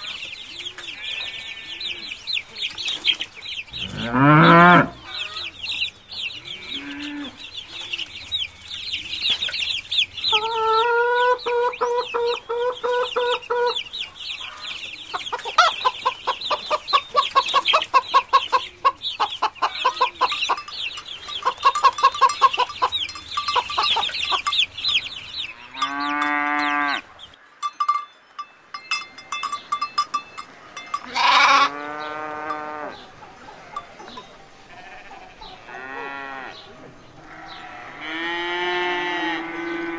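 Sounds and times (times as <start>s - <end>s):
hens clucking: 0.0s - 39.9s
high chirping: 1.1s - 35.6s
sheep bleating: 31.0s - 33.0s, 34.7s - 36.5s.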